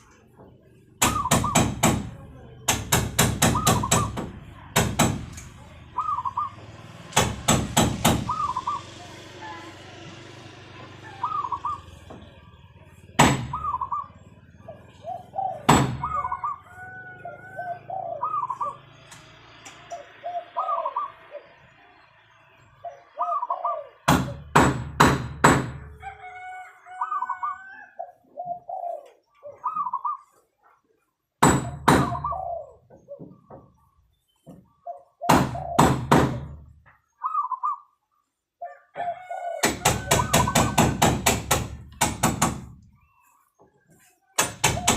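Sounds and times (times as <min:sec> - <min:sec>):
loud sharp knocks: 0:01.0 - 0:05.5, 0:07.0 - 0:08.4, 0:13.2 - 0:13.6, 0:15.7 - 0:16.2, 0:24.0 - 0:25.9, 0:31.4 - 0:32.3, 0:35.3 - 0:36.7, 0:39.6 - 0:42.8, 0:44.4 - 0:44.9
dove cooing: 0:03.5 - 0:04.2, 0:05.9 - 0:06.7, 0:08.2 - 0:09.7, 0:11.0 - 0:12.6, 0:13.4 - 0:19.0, 0:19.9 - 0:21.6, 0:22.8 - 0:24.5, 0:26.1 - 0:30.4, 0:32.0 - 0:33.8, 0:34.7 - 0:36.0, 0:37.1 - 0:38.0, 0:44.6 - 0:44.9.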